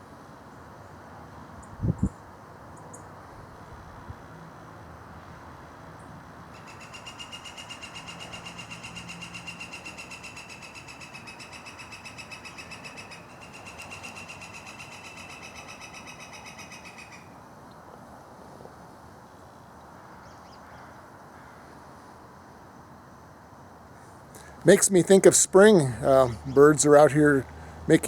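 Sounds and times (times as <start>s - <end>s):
songbird trilling: 6.6s - 17.3s, 25.6s - 27.9s.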